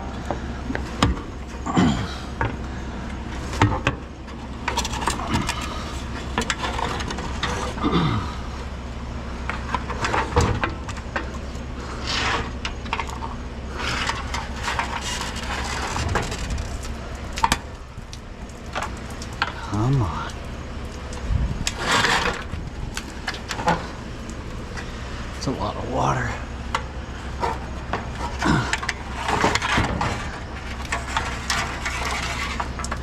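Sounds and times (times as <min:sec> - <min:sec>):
vehicle engine humming: 0:00.0 - 0:33.0
knocks and rattles: 0:09.4 - 0:11.4, 0:12.5 - 0:19.6, 0:26.7 - 0:33.0.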